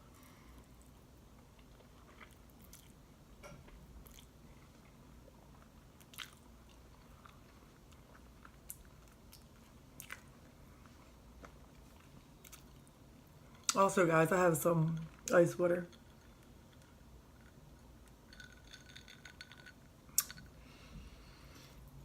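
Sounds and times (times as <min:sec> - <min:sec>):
person chewing food: 0:00.6 - 0:03.0, 0:04.0 - 0:13.8.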